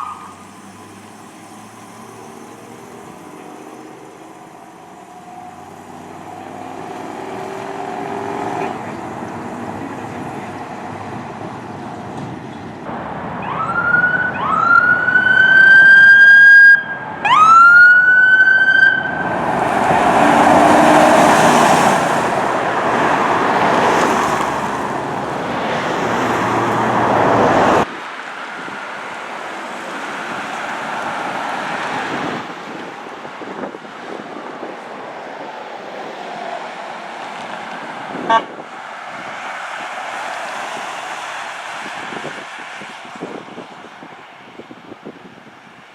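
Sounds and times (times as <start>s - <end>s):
fire truck siren whoops: 0.0s - 2.8s, 13.4s - 24.9s
truck engine and road noise: 0.0s - 45.9s.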